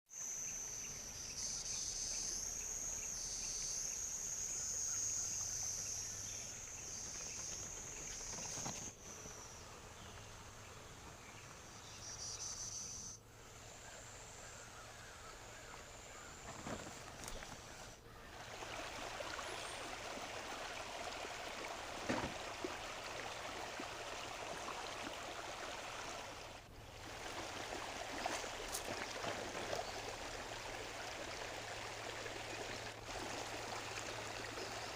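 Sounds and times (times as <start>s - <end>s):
insects chorus: 0.1s - 34.9s
stream flowing: 13.2s - 34.9s.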